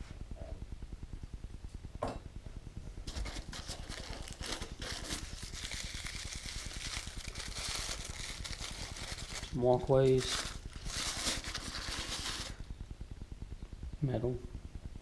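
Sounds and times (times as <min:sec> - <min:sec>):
packaging rustling and crinkling: 0:03.0 - 0:12.7.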